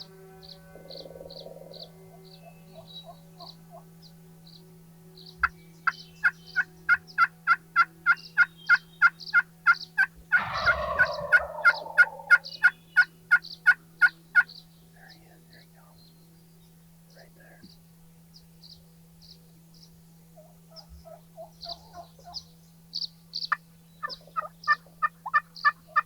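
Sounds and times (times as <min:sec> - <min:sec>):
turkey gobbling: 0:10.0 - 0:14.1
turkey yelps: 0:10.3 - 0:12.7.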